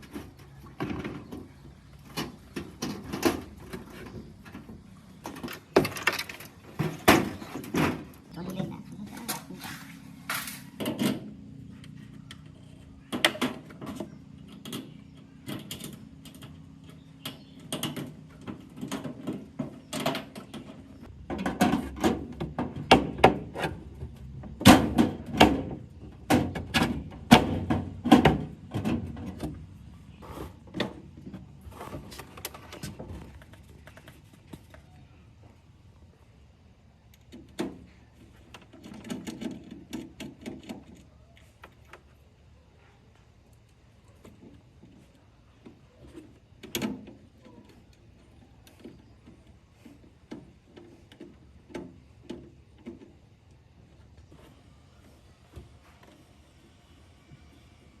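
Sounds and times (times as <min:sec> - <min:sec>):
knocks and clunks of hand work: 0:13.1 - 0:29.7.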